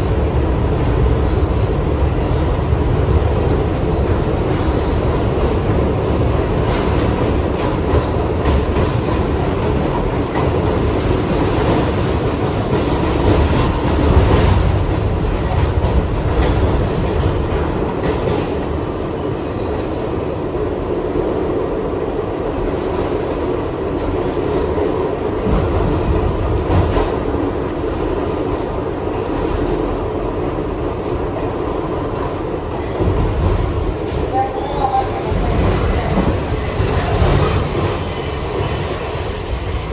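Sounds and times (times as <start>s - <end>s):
subway train rumbling: 0.0s - 39.9s.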